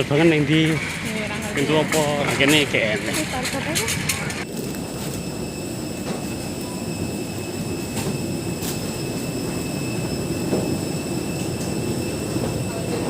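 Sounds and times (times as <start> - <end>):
faint high whines: 4.4 - 13.0.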